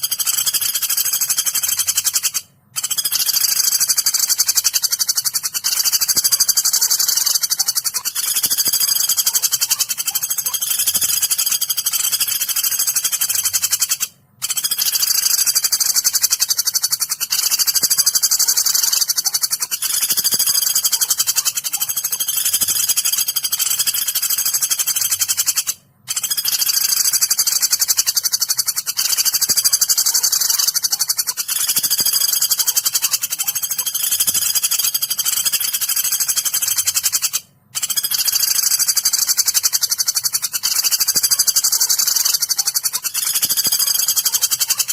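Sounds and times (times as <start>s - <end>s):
woodpecker rattling calls: 0.0s - 44.9s.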